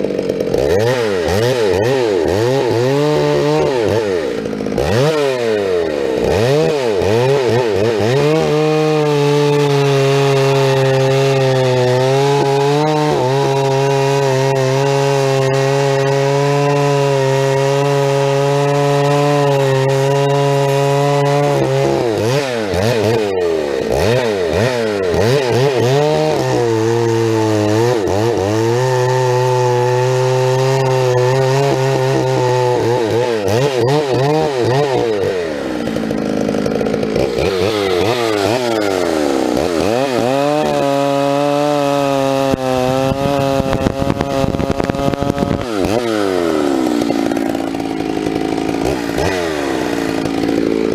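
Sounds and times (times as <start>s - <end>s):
chainsaw cutting wood: 0.0s - 50.9s.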